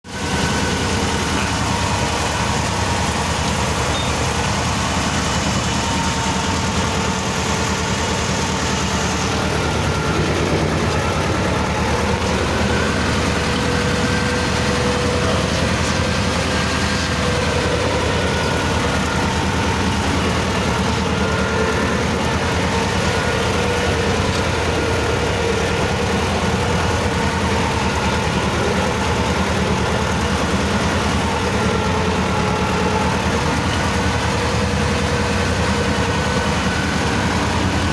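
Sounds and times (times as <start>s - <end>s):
diesel tractor engine throbbing: 0.0s - 37.9s.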